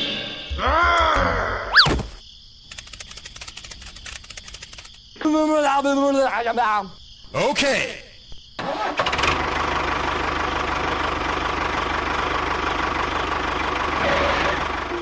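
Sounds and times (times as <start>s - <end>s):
small engine rattling: 2.7s - 5.0s.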